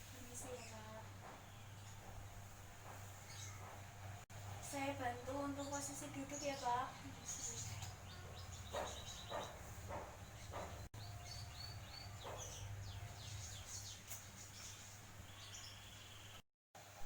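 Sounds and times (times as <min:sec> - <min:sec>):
small birds chirping: 0:00.2 - 0:16.4.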